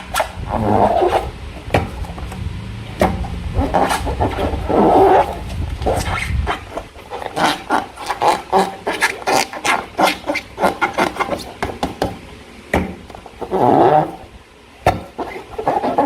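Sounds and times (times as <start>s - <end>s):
slime squelching: 2.9s - 11.6s.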